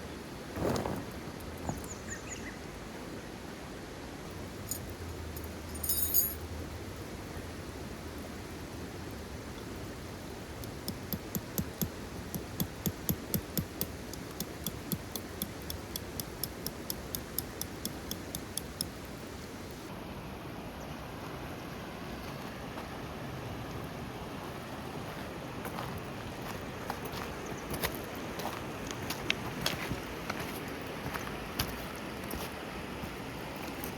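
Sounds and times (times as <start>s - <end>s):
sharp evenly spaced ticks: 10.6s - 19.8s.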